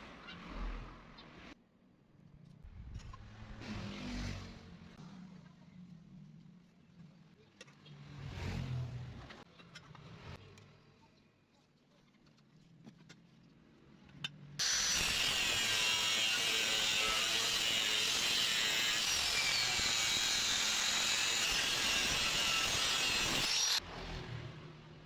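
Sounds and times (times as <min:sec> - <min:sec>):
angle grinder cutting steel: 0:14.6 - 0:23.8.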